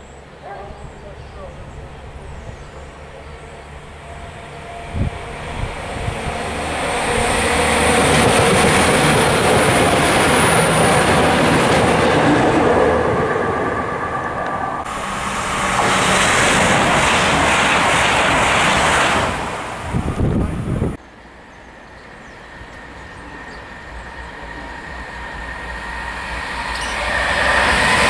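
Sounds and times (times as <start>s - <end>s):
passenger trains passing at speed: 0.0s - 28.0s
thin high whistle of wheels: 26.6s - 27.6s.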